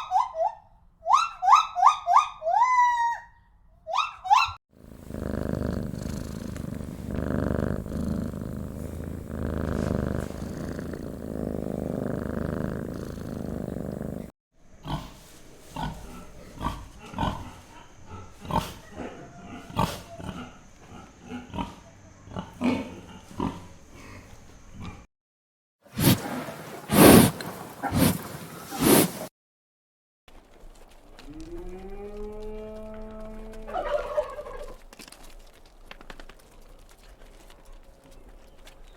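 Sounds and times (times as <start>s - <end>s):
farm animal growling: 4.8s - 24.2s, 31.4s - 34.4s.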